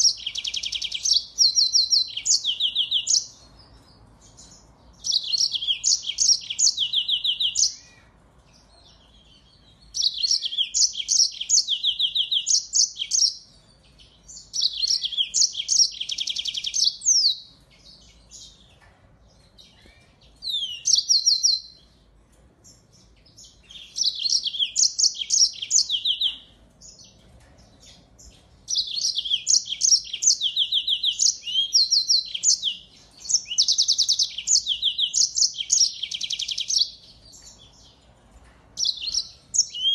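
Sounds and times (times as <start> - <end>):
songbird trilling: 0.0 - 3.4, 5.0 - 8.0, 10.0 - 13.4, 14.4 - 17.5, 20.4 - 21.8, 23.5 - 26.4, 28.7 - 37.6, 38.8 - 39.9.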